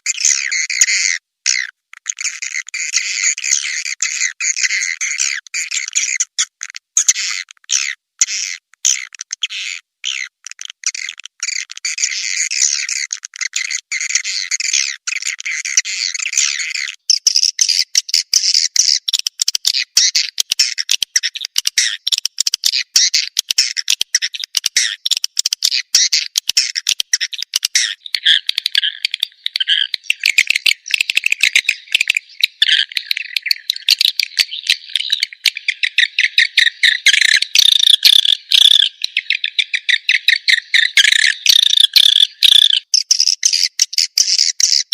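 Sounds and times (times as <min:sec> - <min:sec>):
swiftlet chirping twitters: 0:22.8 - 0:44.9.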